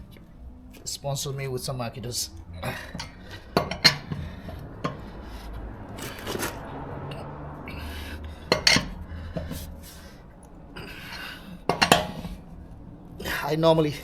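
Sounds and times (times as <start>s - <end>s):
wrench clinking on wheel nuts: 2.2s - 5.1s, 8.5s - 9.6s, 11.1s - 12.4s.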